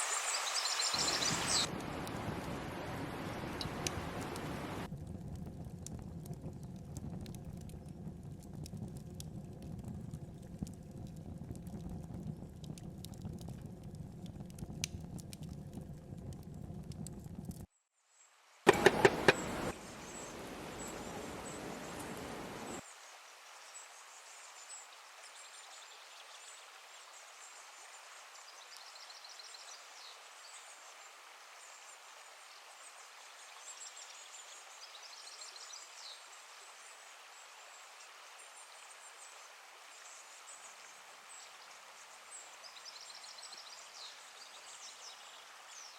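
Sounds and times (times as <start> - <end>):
small birds or insects chirping: 0.0 - 1.7, 18.7 - 22.8
river water rushing: 0.0 - 2.0, 2.7 - 4.9, 18.7 - 22.8.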